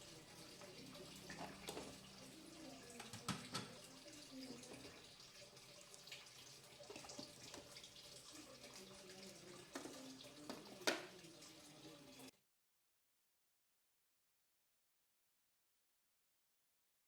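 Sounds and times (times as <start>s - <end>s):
tap water running into sink: 0.0s - 12.3s.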